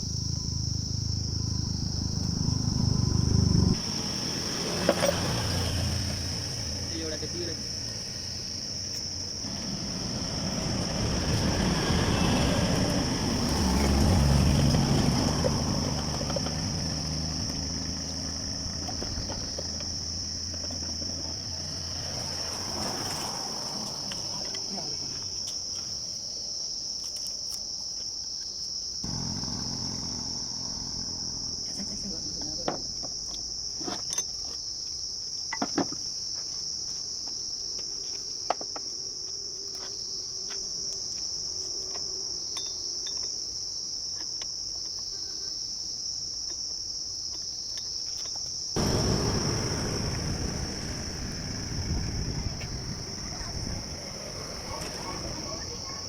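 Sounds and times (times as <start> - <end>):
low rumble: 0.0 - 3.8, 48.8 - 55.4
insects chirring: 0.0 - 56.0.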